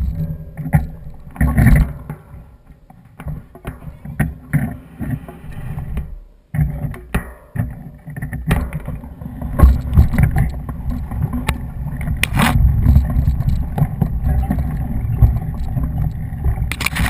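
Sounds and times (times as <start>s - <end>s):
bike knocks and rattles: 0.0s - 4.8s, 6.6s - 17.0s
mountain bike rumbling over ground: 8.6s - 17.0s.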